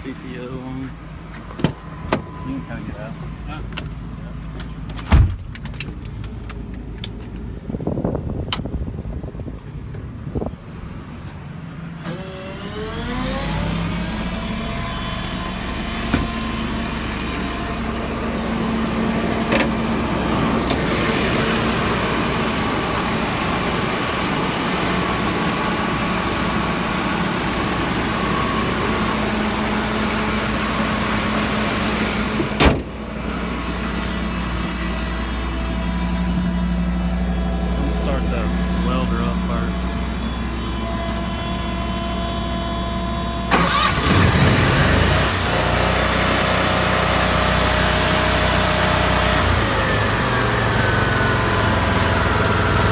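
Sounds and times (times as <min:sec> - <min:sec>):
truck engine running: 0:00.0 - 0:52.9
sharp clunk: 0:32.6 - 0:32.9.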